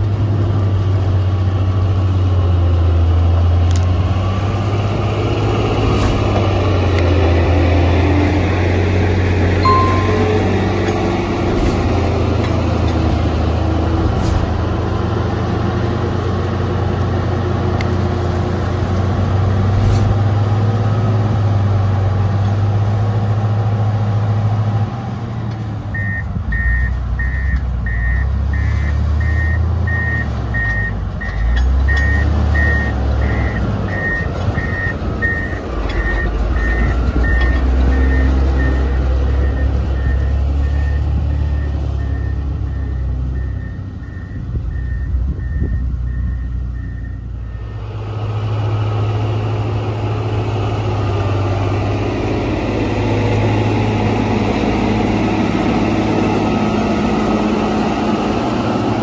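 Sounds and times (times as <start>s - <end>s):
diesel engine drone: 0.0s - 59.0s
reversing alarm beeping: 9.6s - 10.9s, 25.9s - 38.8s, 39.4s - 47.7s.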